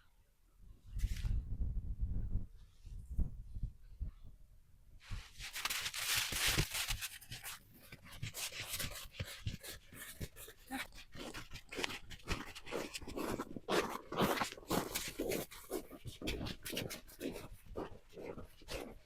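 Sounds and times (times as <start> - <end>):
footsteps crunching in snow: 5.2 - 10.8.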